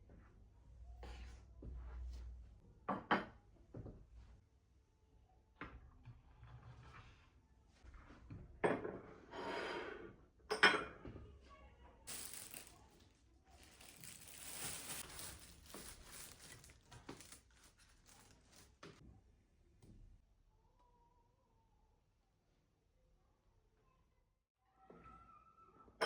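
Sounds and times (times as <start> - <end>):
material rustling and crinkling: 12.1 - 19.0.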